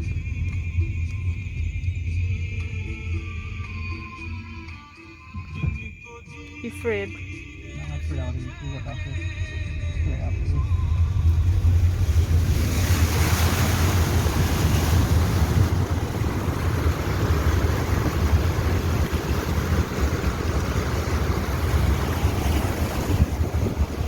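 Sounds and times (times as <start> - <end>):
low engine rumble: 0.0 - 24.0
water spraying against vehicle: 10.4 - 24.0.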